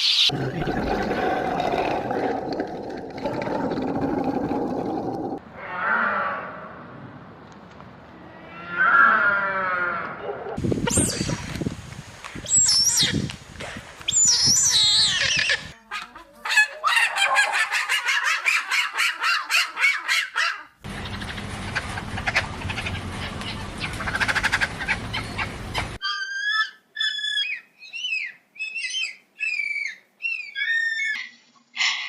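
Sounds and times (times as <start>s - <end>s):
birds calling: 16.6s - 31.9s.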